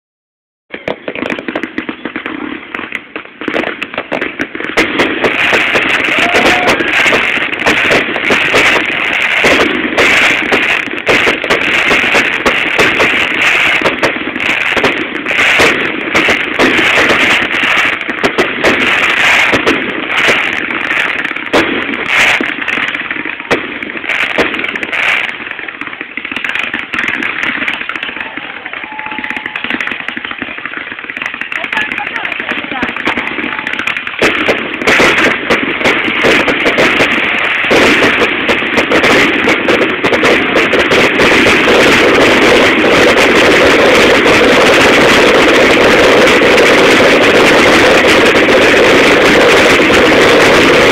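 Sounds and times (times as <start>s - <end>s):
fireworks crackling and popping: 0.7s - 50.9s.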